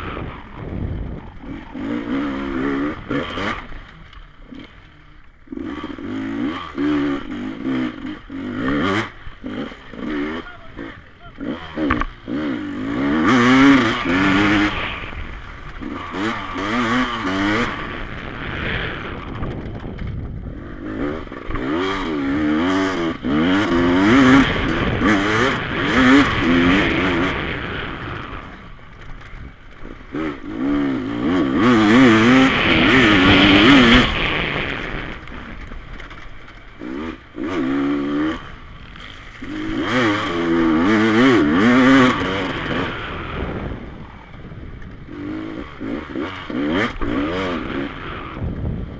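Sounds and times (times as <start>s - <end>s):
dirt bike engines revving: 0.0s - 48.9s.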